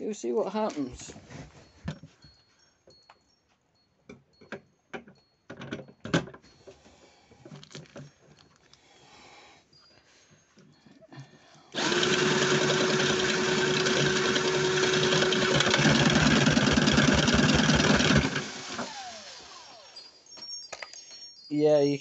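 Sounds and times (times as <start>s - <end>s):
toy mechanism whirring and rattling: 11.7s - 20.1s.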